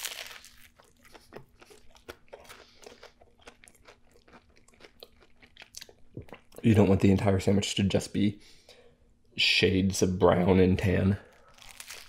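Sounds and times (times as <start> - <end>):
crunchy chewing: 0.0 - 6.6, 11.3 - 12.0.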